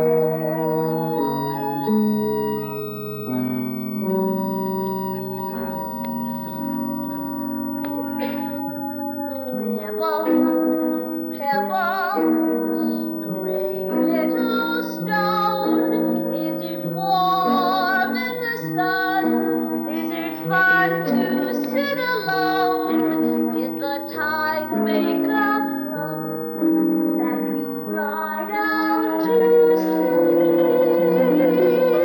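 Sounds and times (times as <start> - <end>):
sustained instrumental accompaniment: 0.0 - 32.0
woman singing a ballad: 9.4 - 26.3, 27.2 - 31.6.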